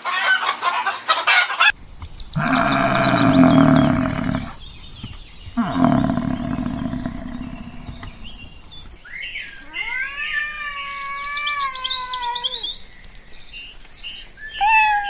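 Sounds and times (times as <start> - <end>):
faint bird chirps: 1.7 - 15.0
low roar: 1.8 - 8.9
cat meowing: 9.6 - 12.8, 14.6 - 15.0.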